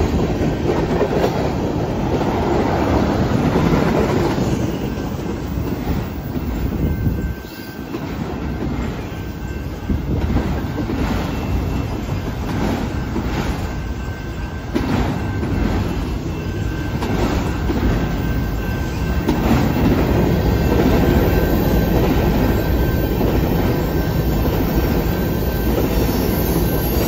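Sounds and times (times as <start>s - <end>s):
train wheels rumbling on rail: 0.0s - 27.0s
wheels clacking over rail joints: 9.9s - 27.0s.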